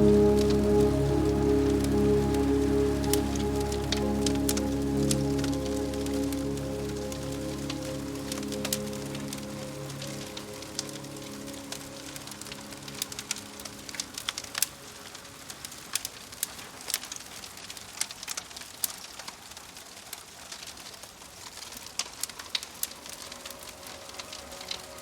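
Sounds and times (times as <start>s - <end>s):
soft ambient music: 0.0s - 16.4s, 22.2s - 25.0s
fireplace fire crackling: 0.0s - 25.0s
rain pattering: 0.0s - 25.0s.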